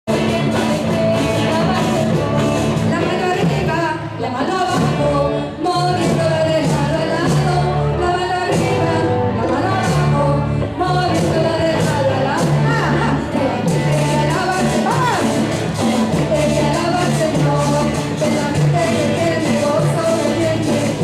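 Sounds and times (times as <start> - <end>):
song with instrumental accompaniment: 0.1 - 21.0.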